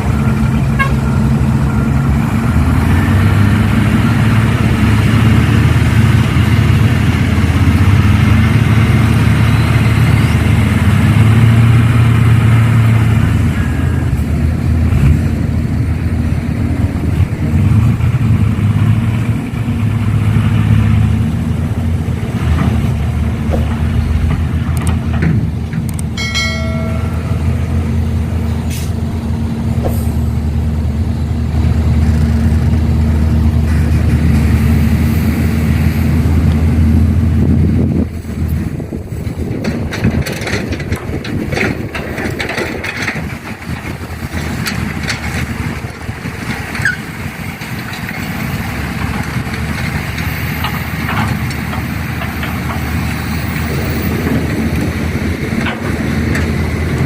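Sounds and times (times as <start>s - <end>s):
diesel engines droning: 0.0s - 57.0s
horn toot: 0.7s - 1.2s.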